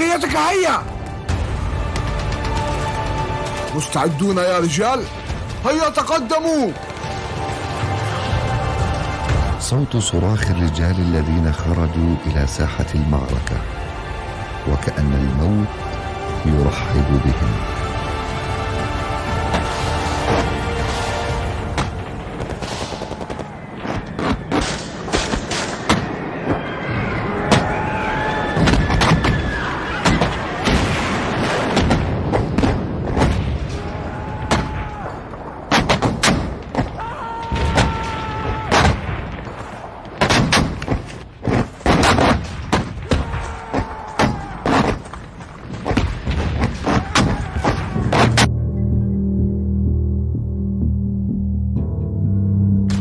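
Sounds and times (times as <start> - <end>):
explosions: 28.4 - 48.5
men shouting: 43.1 - 44.8.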